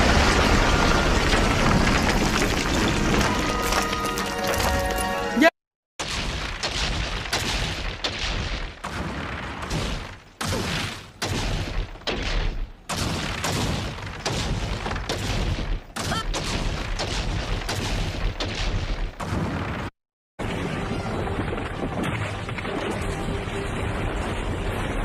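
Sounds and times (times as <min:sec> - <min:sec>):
rock splitting crashes: 0:00.0 - 0:04.8.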